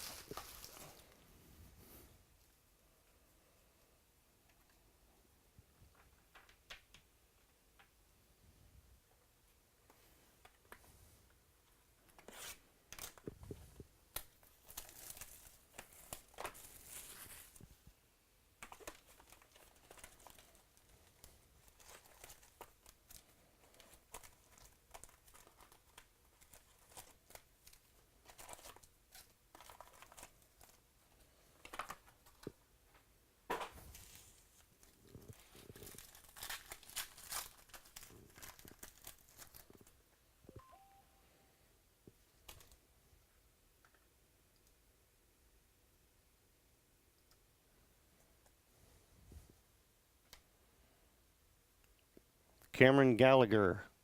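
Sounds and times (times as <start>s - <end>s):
cards and wrappers crinkling: 0.0s - 1.2s, 12.1s - 17.7s, 18.6s - 32.6s, 33.6s - 40.0s.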